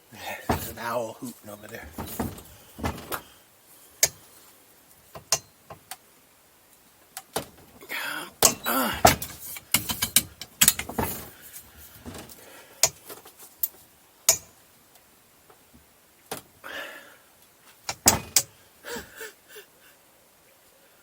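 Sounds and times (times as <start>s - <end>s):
wrench clanking on metal: 0.5s - 0.9s, 1.7s - 3.3s, 8.4s - 11.4s, 17.9s - 18.5s.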